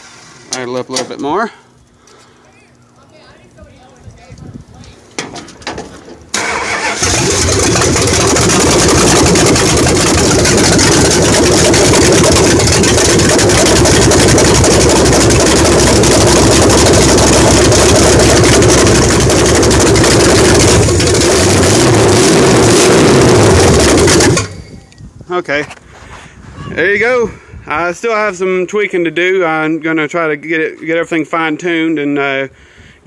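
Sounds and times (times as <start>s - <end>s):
loud car engine idling: 6.3s - 24.6s.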